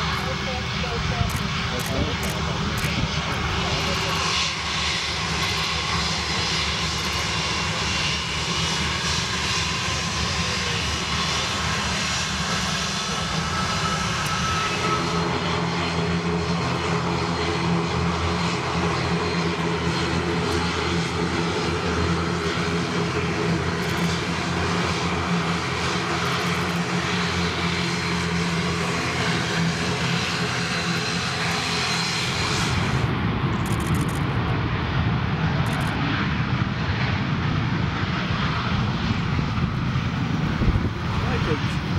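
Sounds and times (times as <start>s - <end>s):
jet engine roar: 0.0s - 41.9s.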